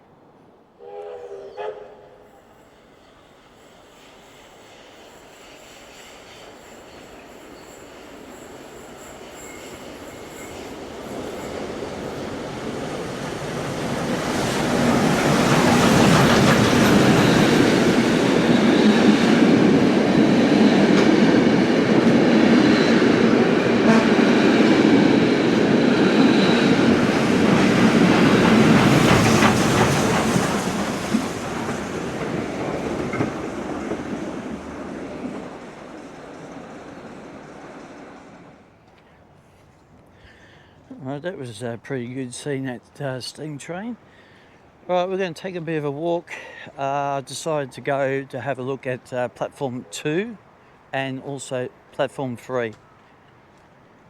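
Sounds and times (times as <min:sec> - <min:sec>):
train rumbling past: 0:00.0 - 0:54.0
high wheel squeal: 0:05.1 - 0:12.2.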